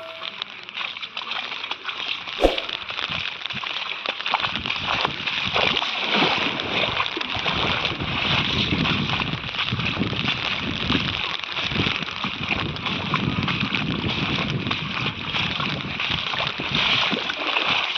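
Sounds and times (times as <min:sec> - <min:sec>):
sharp knock: 0:02.4 - 0:02.8
floodwater sloshing and gurgling: 0:12.4 - 0:17.9.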